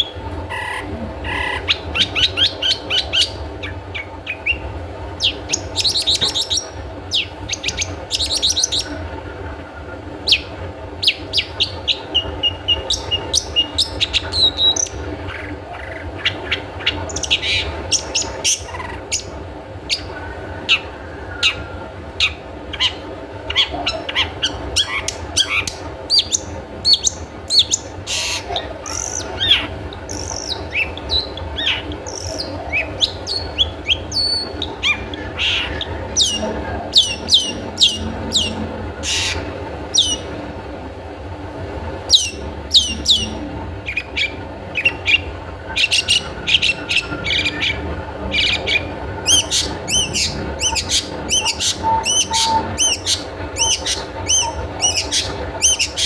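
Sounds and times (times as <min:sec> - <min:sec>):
steady low hum: 0:00.0 - 0:56.0
shrike calling sharp notes: 0:48.5 - 0:56.0.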